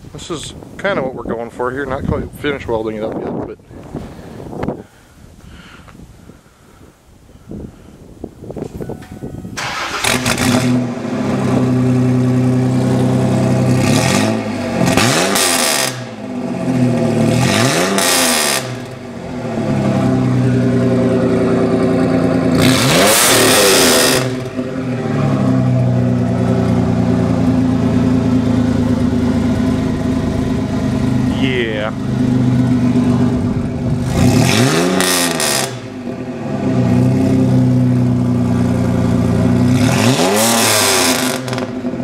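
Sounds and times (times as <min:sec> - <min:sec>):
engine starting and revving: 0:09.6 - 0:27.0, 0:32.2 - 0:37.8, 0:39.5 - 0:42.0.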